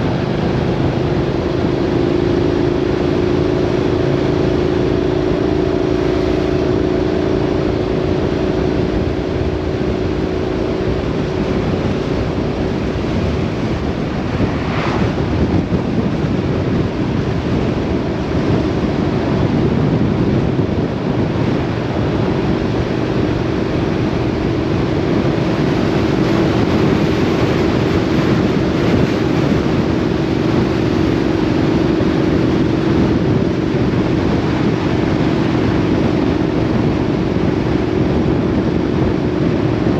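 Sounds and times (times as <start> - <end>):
vehicle engine droning: 0.0 - 39.9
wind and road noise: 0.0 - 39.9.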